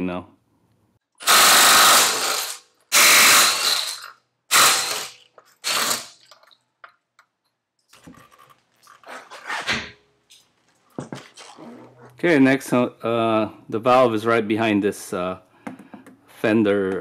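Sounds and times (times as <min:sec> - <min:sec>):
impact wrench bursts: 0:01.2 - 0:06.2.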